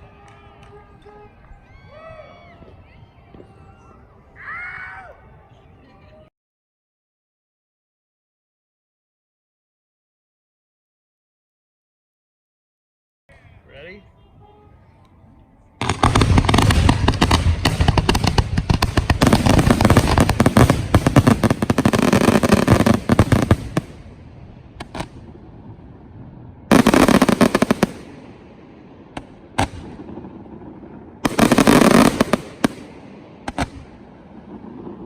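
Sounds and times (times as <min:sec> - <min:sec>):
fireworks bangs and crackling: 0:15.8 - 0:35.0.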